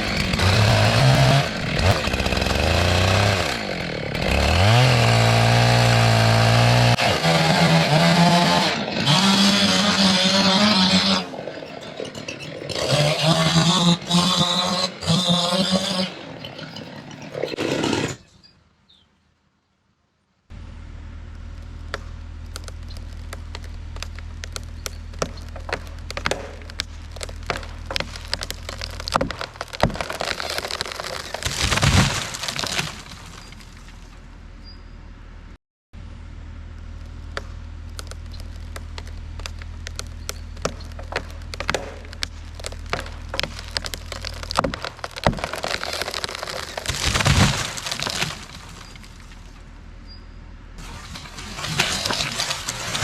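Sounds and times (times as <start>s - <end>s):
tree wood cracking and splintering: 0.0s - 18.2s, 21.3s - 34.4s, 36.8s - 50.0s, 50.8s - 53.0s
low engine drone: 20.5s - 28.8s, 34.1s - 44.2s, 48.4s - 53.0s.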